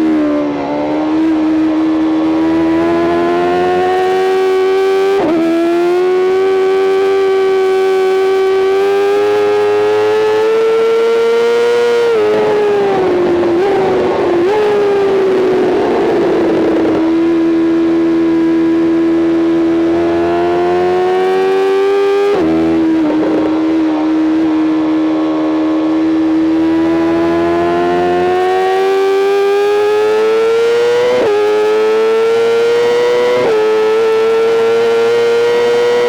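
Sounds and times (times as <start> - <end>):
motorcycle engine at high revs: 0.0 - 36.0
wind rush: 12.0 - 17.2.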